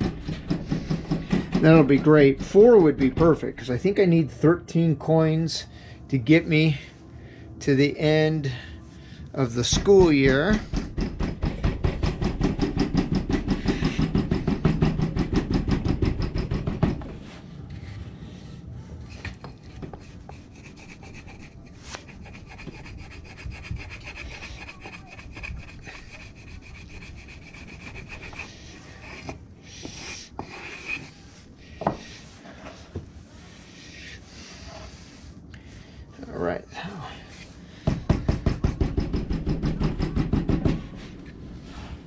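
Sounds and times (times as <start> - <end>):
fast rubbing of damp sand: 20.0 - 29.3.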